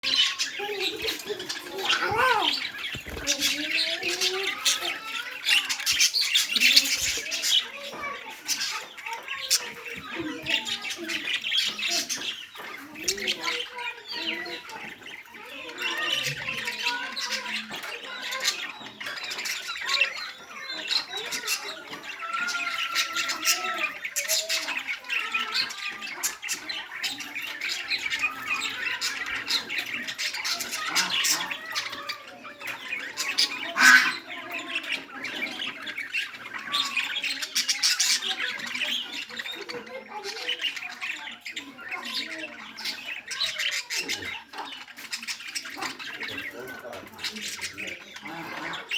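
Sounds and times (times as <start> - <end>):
bird squawking and chattering: 0.0 - 48.9.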